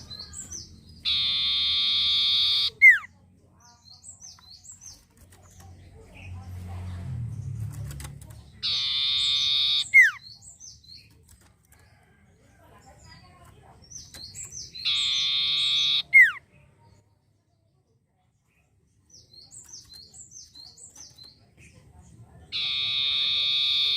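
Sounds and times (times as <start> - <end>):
bird buzzing trill and whistle: 1.0 - 3.0, 14.8 - 16.4.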